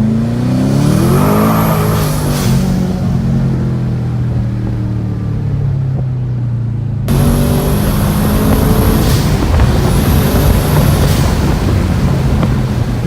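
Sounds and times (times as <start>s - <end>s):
car engine idling: 2.8s - 13.0s
high whine: 7.1s - 13.0s.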